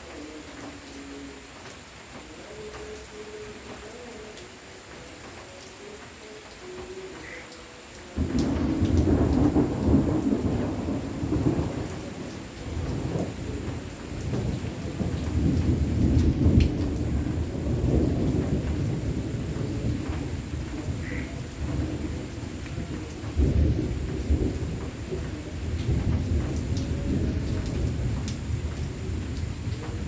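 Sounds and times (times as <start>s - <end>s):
rain falling: 0.0s - 30.0s
thunder rolling: 8.2s - 30.0s.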